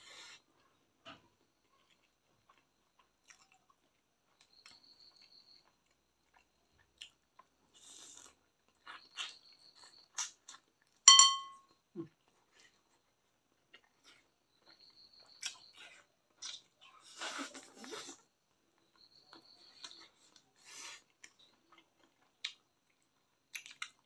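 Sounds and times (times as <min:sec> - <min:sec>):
person chewing and biting food: 0:01.7 - 0:04.8, 0:05.6 - 0:10.9, 0:19.8 - 0:24.0
sharp ringing click: 0:11.1 - 0:11.6.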